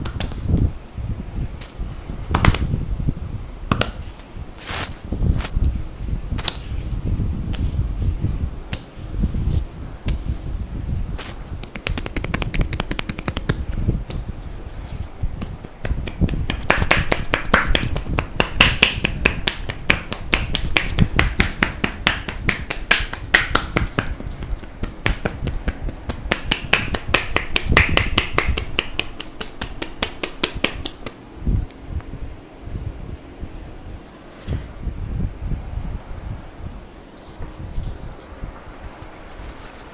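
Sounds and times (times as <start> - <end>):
hands slapping on skin: 2.3 - 2.7, 3.7 - 4.0, 6.4 - 6.7, 11.2 - 14.2, 15.3 - 31.2
hands rubbing on skin: 4.6 - 10.3, 10.9 - 14.2, 15.6 - 31.2.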